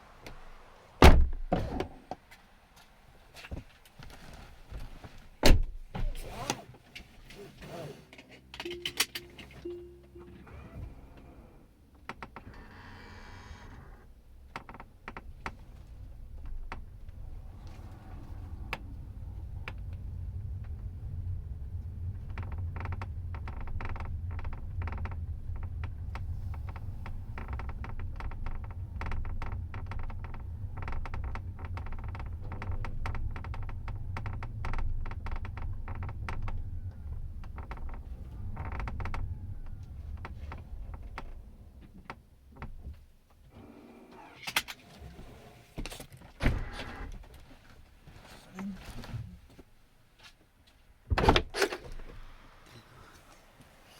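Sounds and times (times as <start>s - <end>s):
road noise inside car: 0.0s - 12.6s, 14.0s - 49.9s
suspension creaking and clicking: 5.6s - 47.5s.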